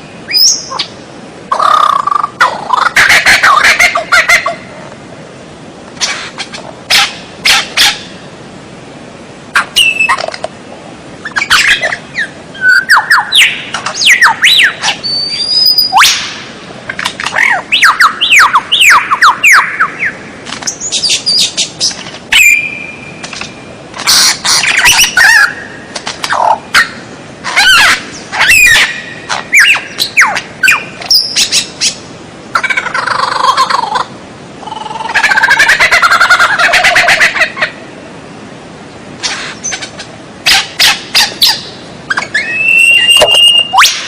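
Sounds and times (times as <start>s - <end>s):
songbird singing varied song: 0.0s - 2.8s, 9.6s - 10.3s, 11.2s - 16.3s, 17.3s - 32.0s, 40.9s - 44.0s.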